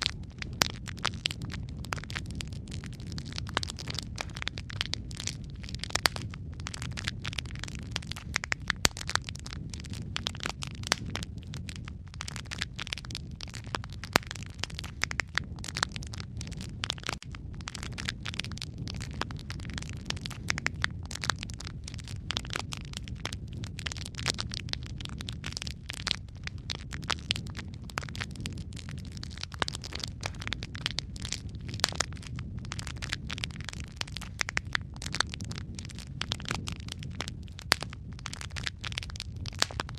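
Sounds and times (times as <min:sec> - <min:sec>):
loud pops of fire: 0:00.0 - 0:39.9
low rumble of flames: 0:00.0 - 0:39.9
wood fire crackling: 0:00.0 - 0:39.9.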